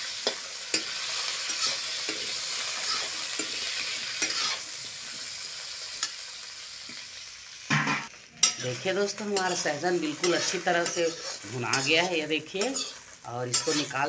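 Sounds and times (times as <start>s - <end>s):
food sizzling in hot oil: 0.0s - 14.0s
spatula scraping and tapping pan: 0.2s - 4.6s.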